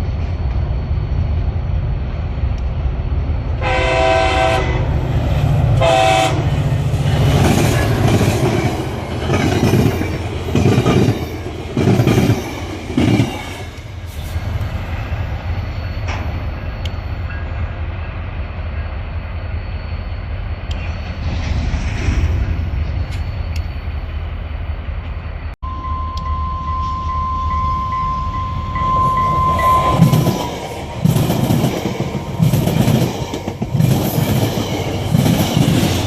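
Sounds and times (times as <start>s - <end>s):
train rumble: 0.0s - 36.0s
train horn blasts: 3.6s - 5.0s, 5.8s - 6.5s, 25.7s - 30.3s.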